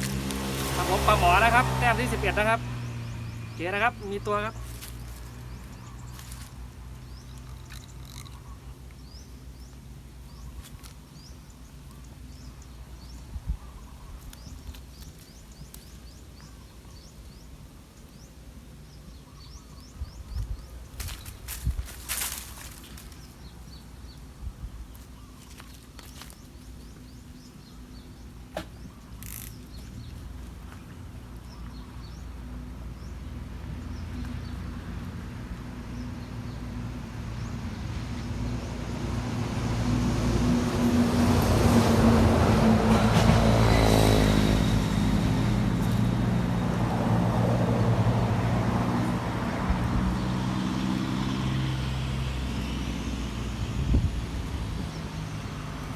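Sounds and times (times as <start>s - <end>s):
vehicle engine passing by: 0.0s - 8.3s, 33.0s - 55.9s.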